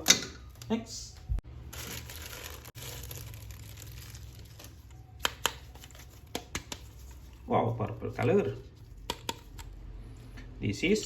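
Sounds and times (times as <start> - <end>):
plastic packaging crinkling and tearing: 1.5 - 6.2.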